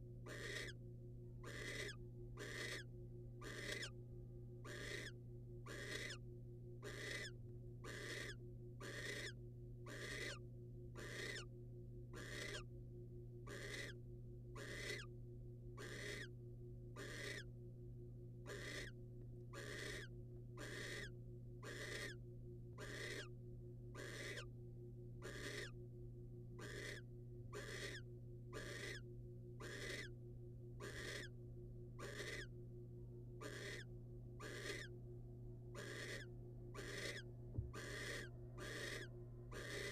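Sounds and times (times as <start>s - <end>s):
low electrical hum: 0.0s - 39.9s
owl hissing snore calls: 0.3s - 0.8s, 1.5s - 3.9s, 4.7s - 6.2s, 6.9s - 7.3s, 7.9s - 10.4s, 11.0s - 11.5s, 12.2s - 12.6s, 13.5s - 14.0s, 14.6s - 15.1s, 15.8s - 16.3s, 17.0s - 17.5s, 18.5s - 18.9s, 19.6s - 21.1s, 21.7s - 22.2s, 22.8s - 23.3s, 24.0s - 24.5s, 25.3s - 25.7s, 26.6s - 27.0s, 27.6s - 28.0s, 28.6s - 29.0s, 29.6s - 30.1s, 30.8s - 31.3s, 32.0s - 32.5s, 33.4s - 34.9s, 35.8s - 39.9s.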